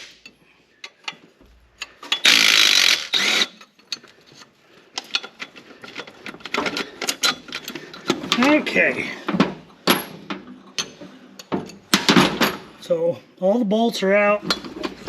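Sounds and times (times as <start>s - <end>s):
ratchet wrench clicking: 1.8s - 3.9s.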